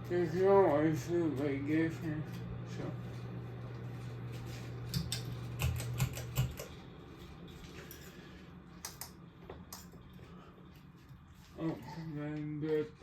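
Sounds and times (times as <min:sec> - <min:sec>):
steady low hum: 0:00.0 - 0:13.0
light clicks and taps: 0:08.8 - 0:10.0.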